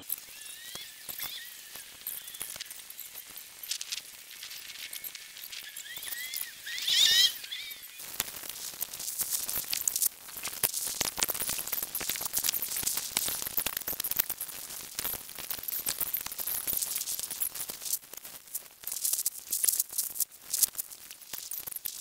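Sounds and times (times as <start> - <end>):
chicks peeping: 0.0 - 8.2
crackly rustling and scratching: 0.0 - 22.0.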